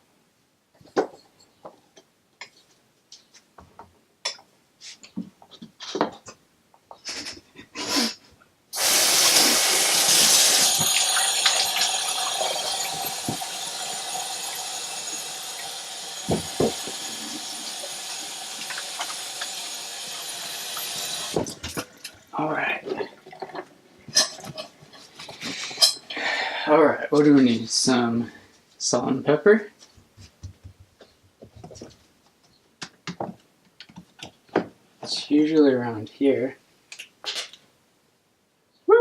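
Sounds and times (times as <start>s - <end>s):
tap water running into sink: 8.8s - 22.3s
kitchen things clicking and knocking: 16.2s - 18.0s, 23.3s - 26.1s.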